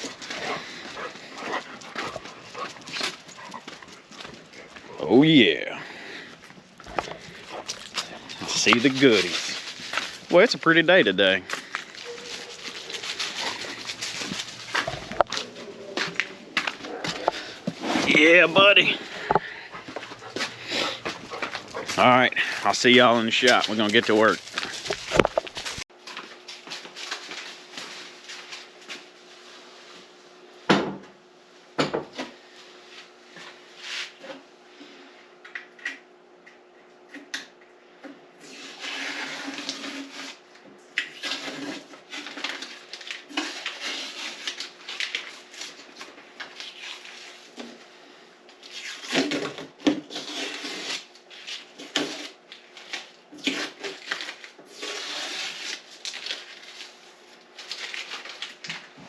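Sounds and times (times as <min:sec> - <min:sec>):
rustling: 0:06.0 - 0:25.8.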